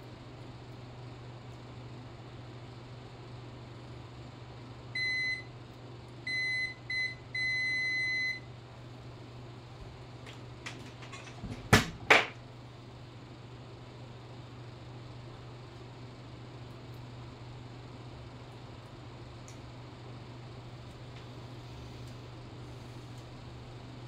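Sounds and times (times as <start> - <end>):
multimeter buzzer beeping: 5.0 - 5.5, 6.3 - 8.4.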